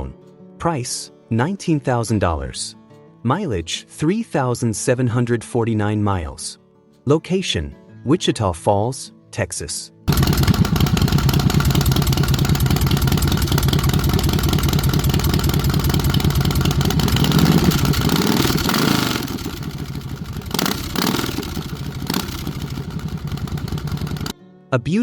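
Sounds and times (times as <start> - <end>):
motorcycle engine revving: 10.1 - 24.3.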